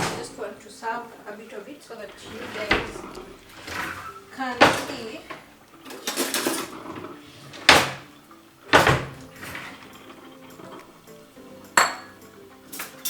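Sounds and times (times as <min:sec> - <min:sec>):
faint background music: 0:00.0 - 0:13.0
spoon knocking on pot: 0:11.8 - 0:12.2.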